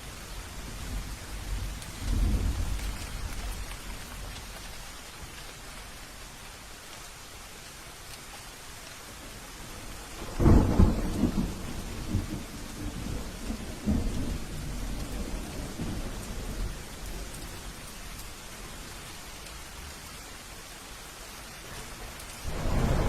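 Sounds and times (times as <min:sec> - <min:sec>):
steady rain: 0:00.0 - 0:23.0
thunder rumbling: 0:00.6 - 0:04.4, 0:10.2 - 0:17.1, 0:22.4 - 0:23.0.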